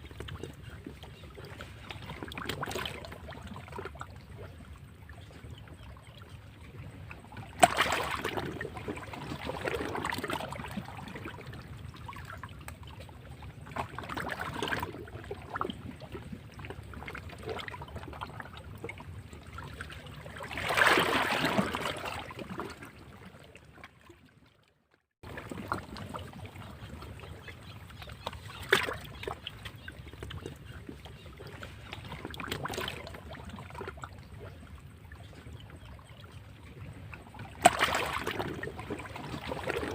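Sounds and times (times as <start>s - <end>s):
waves splashing against rocks: 7.6s - 10.4s, 20.4s - 22.6s, 37.6s - 39.9s.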